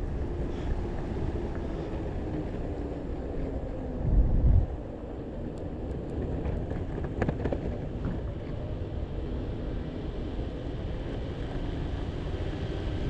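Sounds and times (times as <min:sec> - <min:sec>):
skateboard wheels rumbling: 0:00.0 - 0:13.0
wind on microphone: 0:03.8 - 0:05.0.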